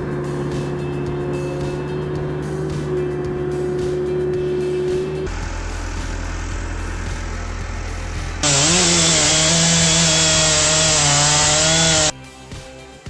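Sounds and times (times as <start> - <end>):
saw engine cutting wood: 2.4 - 12.1
machine hum: 5.3 - 12.1.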